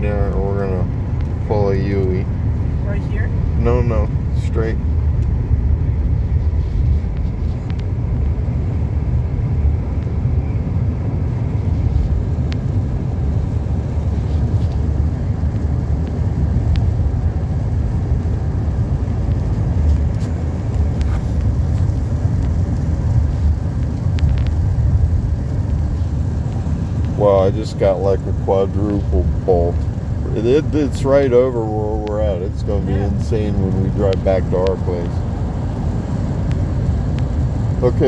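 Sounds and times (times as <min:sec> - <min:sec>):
car cabin road noise: 0:00.0 - 0:38.0.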